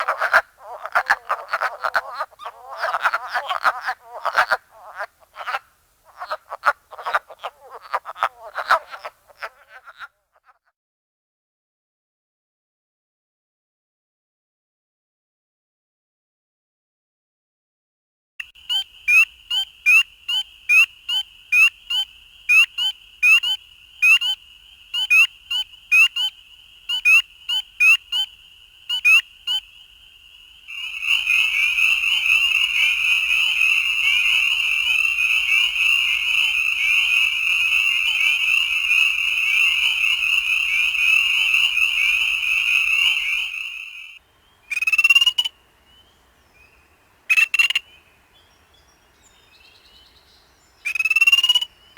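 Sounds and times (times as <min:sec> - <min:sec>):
frog chorus: 0:00.0 - 0:10.7, 0:18.4 - 0:51.9
single high frog calls: 0:00.0 - 0:10.7, 0:18.4 - 0:46.1, 0:47.3 - 0:48.1, 0:50.8 - 0:51.9.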